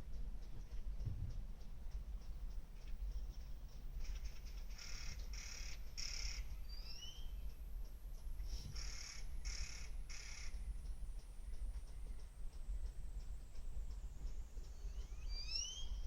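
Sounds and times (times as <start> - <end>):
steady low rumble: 0.0 - 16.0
rising bird chirp: 3.7 - 7.6, 8.5 - 12.4, 13.9 - 16.0
crow cawing: 8.8 - 10.6.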